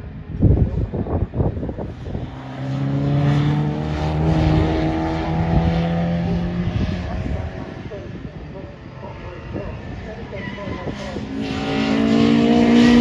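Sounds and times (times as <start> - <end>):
race car engine accelerating: 1.7 - 8.2, 9.5 - 13.0.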